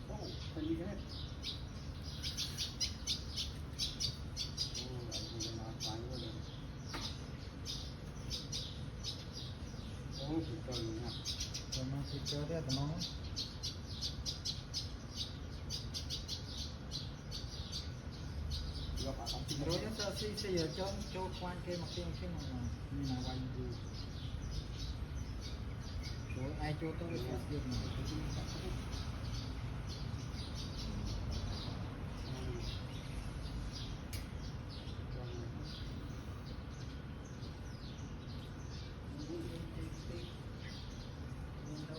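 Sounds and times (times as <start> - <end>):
small bird chirping: 0.0 - 41.9
sharp click: 34.1 - 34.4.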